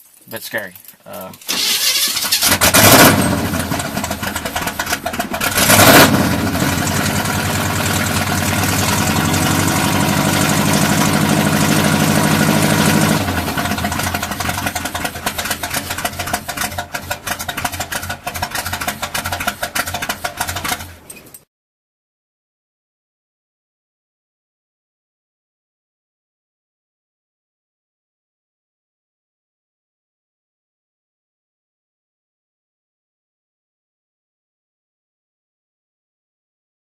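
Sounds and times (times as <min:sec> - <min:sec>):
car engines revving: 0:01.5 - 0:20.9.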